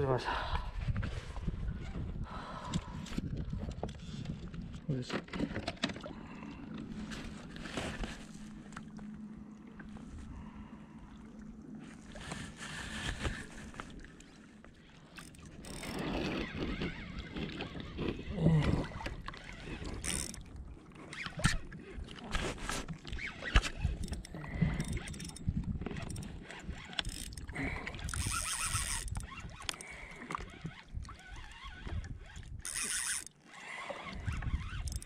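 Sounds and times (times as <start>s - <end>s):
water sounds: 0.0s - 35.0s
gear knocking and rustling: 23.2s - 29.8s.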